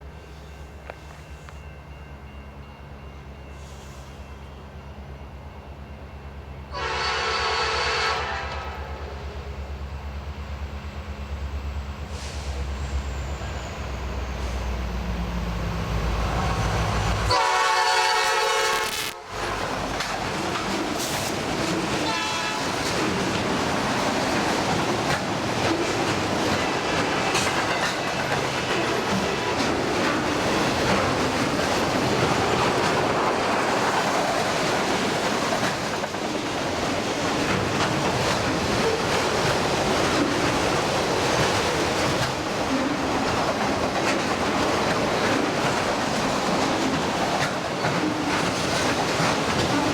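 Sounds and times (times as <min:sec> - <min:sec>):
train air horn: 0:06.7 - 0:09.4, 0:17.2 - 0:19.6, 0:22.0 - 0:22.9
train wheels clattering on rails: 0:19.4 - 0:49.9.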